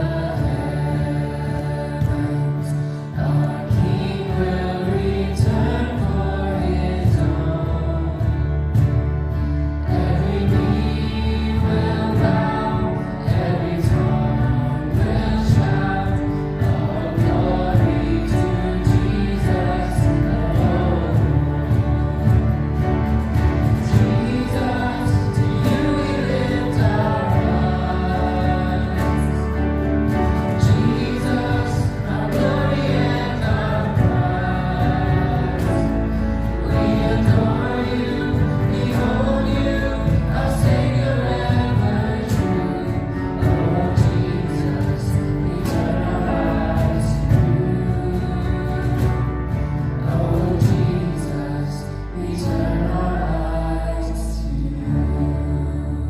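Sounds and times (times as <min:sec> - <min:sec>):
choir singing: 0:00.0 - 0:56.0
sustained chords: 0:00.0 - 0:56.0.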